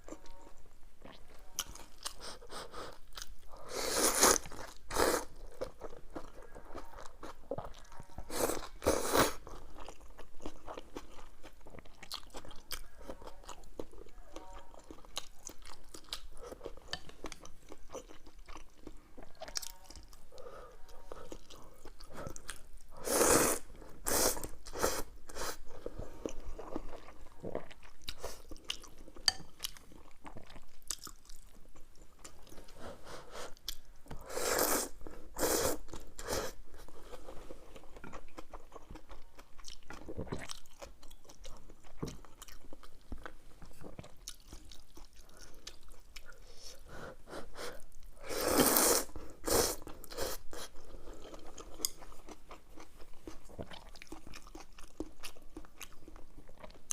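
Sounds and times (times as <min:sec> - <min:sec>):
person chewing and crunching food: 0:00.0 - 0:56.9.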